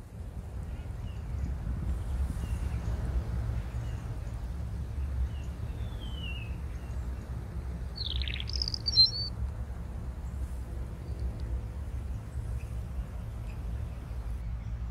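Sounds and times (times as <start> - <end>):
birds calling: 7.8 - 9.3.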